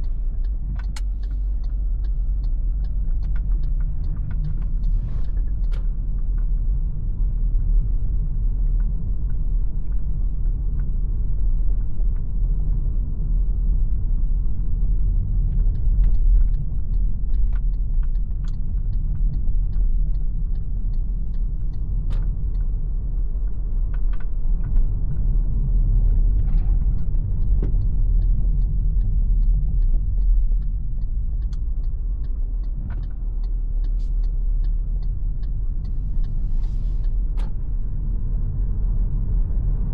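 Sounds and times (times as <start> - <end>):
car road and drivetrain rumble: 0.0 - 39.9.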